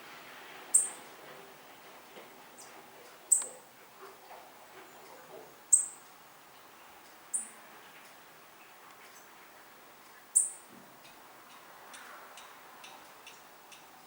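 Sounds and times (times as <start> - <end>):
bird high-pitched call notes: 0.7 - 1.0, 5.7 - 6.0, 7.3 - 7.6, 10.4 - 10.6.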